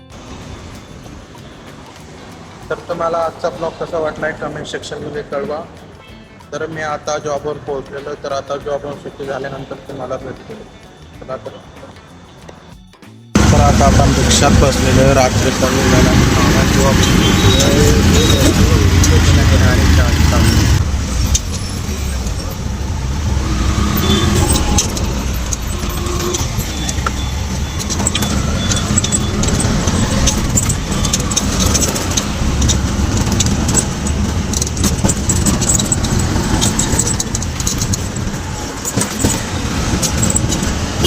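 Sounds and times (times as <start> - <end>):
auto-rickshaw engine rumble: 0.0 - 12.7, 13.3 - 41.0
rattles and clicks from body: 24.0 - 41.0.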